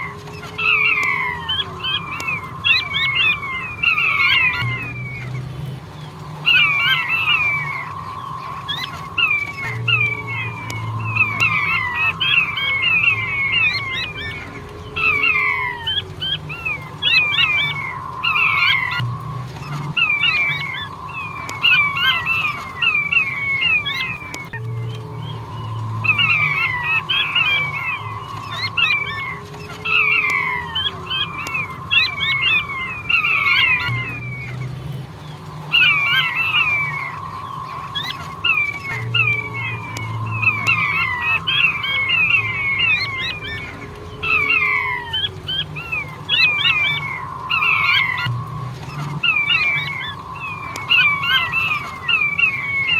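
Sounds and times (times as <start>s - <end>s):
low hum: 0.0s - 52.9s
quail whistled call: 0.0s - 52.9s.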